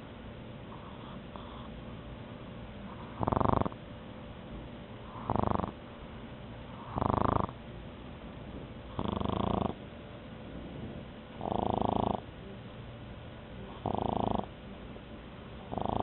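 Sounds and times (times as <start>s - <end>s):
dog snoring: 0.7s - 1.8s, 2.9s - 3.8s, 5.0s - 5.8s, 6.7s - 7.6s, 8.9s - 9.8s, 11.4s - 12.3s, 13.7s - 14.6s, 15.6s - 16.0s.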